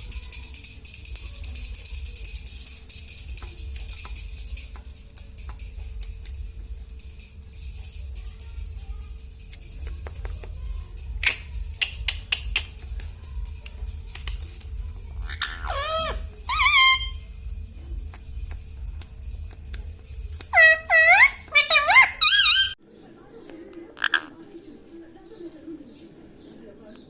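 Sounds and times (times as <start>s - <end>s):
small bell jingling: 0.0s - 22.8s
parrot squawk: 15.2s - 17.2s, 20.5s - 22.8s.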